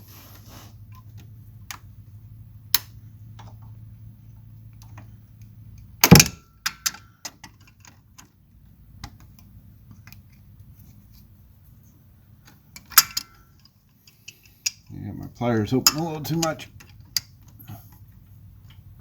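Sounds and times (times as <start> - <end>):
metal tools clanking on metal: 12.8 - 14.9, 15.6 - 17.9.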